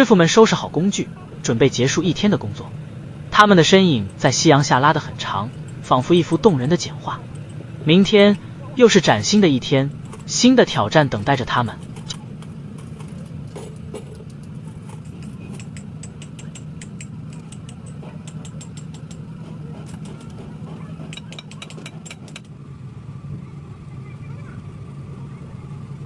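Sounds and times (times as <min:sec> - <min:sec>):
engine idling: 0:00.0 - 0:26.0
faint steady whine: 0:00.0 - 0:26.0
sharp clicks and taps: 0:11.9 - 0:22.5.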